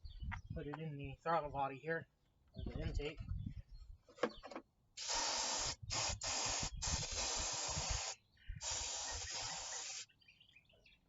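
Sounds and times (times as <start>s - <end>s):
aerosol can hissing: 5.0s - 10.1s.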